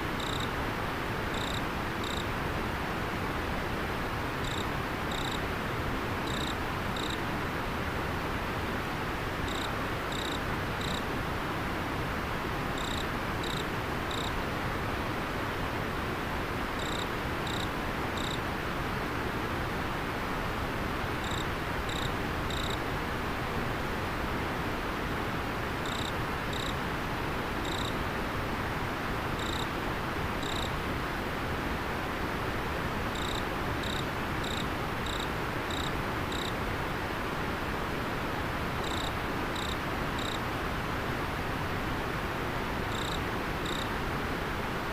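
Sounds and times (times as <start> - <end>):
insect chirping: 0.1 - 0.5, 1.3 - 2.3, 4.4 - 5.4, 6.2 - 7.2, 9.5 - 11.0, 12.8 - 14.3, 16.8 - 18.4, 21.2 - 22.8, 25.8 - 26.8, 27.6 - 28.0, 29.4 - 29.7, 30.4 - 30.7, 33.1 - 36.5, 38.8 - 40.4, 42.9 - 43.9.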